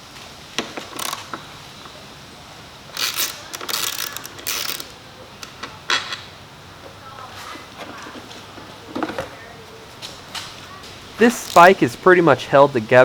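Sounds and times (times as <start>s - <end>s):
metallic clicking and scraping: 3.0s - 4.9s.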